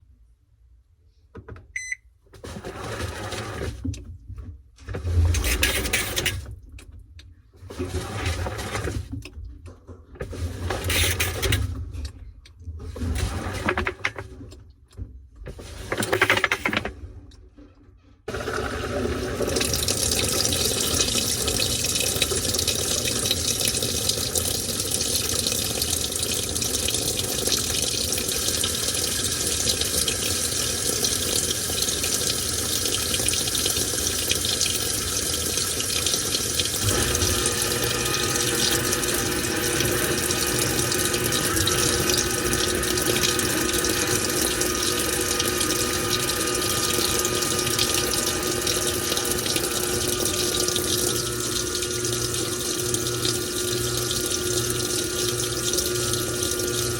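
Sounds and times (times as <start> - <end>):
water rushing into tub: 5.0 - 6.5, 10.2 - 12.0, 18.3 - 56.9.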